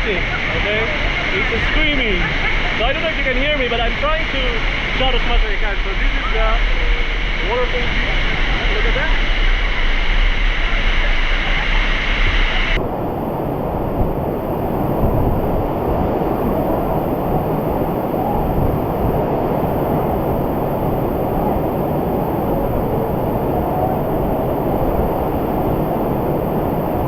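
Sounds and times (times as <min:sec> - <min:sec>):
waterfall rushing: 0:12.8 - 0:27.0.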